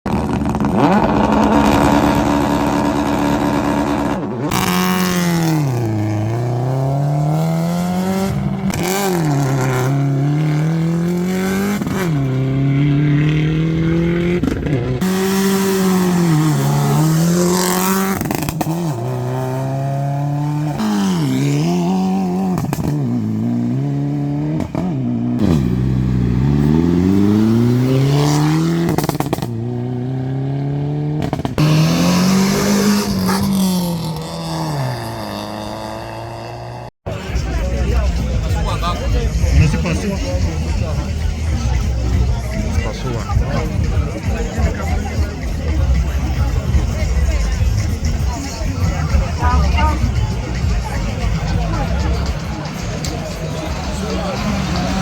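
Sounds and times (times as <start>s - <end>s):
rally car engines revving: 0.1s - 55.0s.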